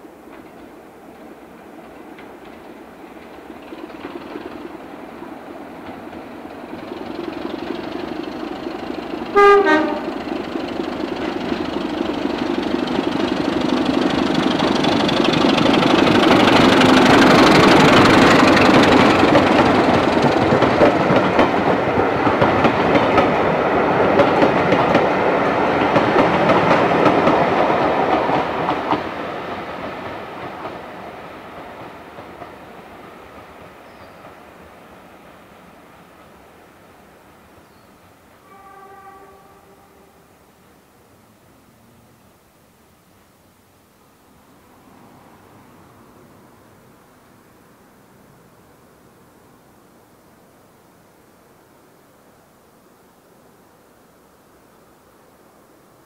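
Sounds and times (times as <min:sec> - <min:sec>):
train wheels on rails: 0:00.0 - 0:42.4
locomotive horn blast: 0:09.3 - 0:10.2, 0:38.4 - 0:40.3.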